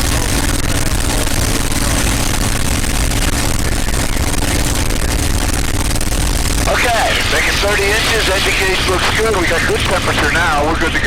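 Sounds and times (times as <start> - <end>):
propeller plane engine running: 0.0 - 11.0.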